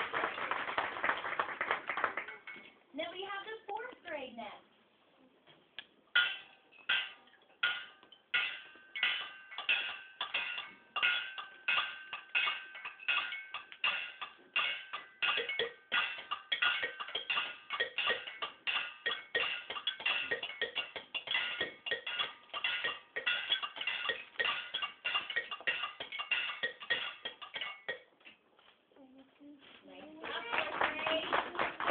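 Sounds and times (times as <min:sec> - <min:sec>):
children playing percussion: 0:06.2 - 0:28.0, 0:30.2 - 0:31.9.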